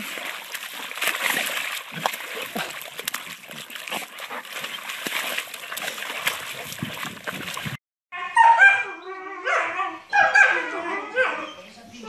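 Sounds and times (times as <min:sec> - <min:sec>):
dog rolling in wet mud: 0:00.0 - 0:07.8.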